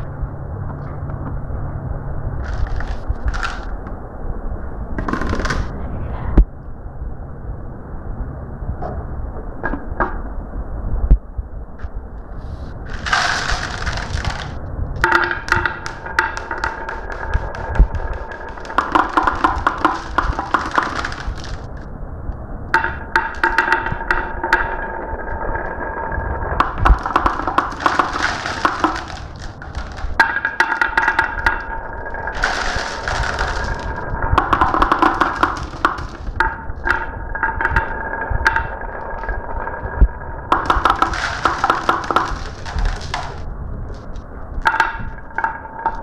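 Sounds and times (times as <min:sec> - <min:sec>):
marbles clicking and clacking: 0:02.4 - 0:03.7, 0:12.9 - 0:21.8, 0:22.8 - 0:46.0
marbles rolling rattle: 0:02.4 - 0:03.7, 0:12.9 - 0:21.8, 0:22.7 - 0:46.0.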